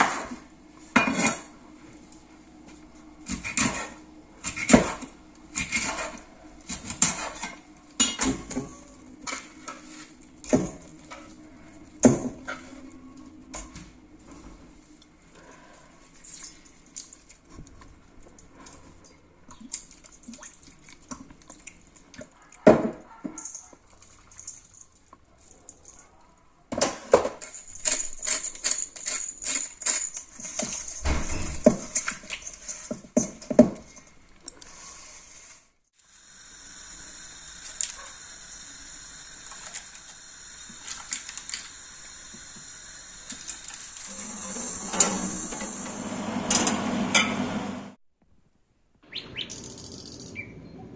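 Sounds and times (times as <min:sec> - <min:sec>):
dishes and utensils clinking: 0:00.9 - 0:01.5, 0:07.0 - 0:11.3
steady hiss: 0:34.9 - 0:45.8.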